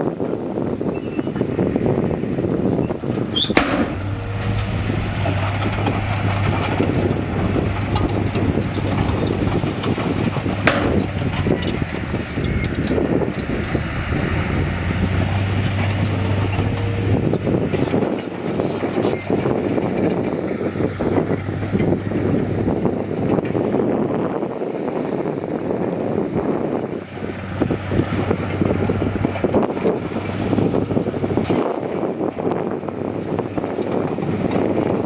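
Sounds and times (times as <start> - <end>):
heavy diesel machinery engine drone: 0.0 - 35.0
sharp knocks: 3.5 - 8.4.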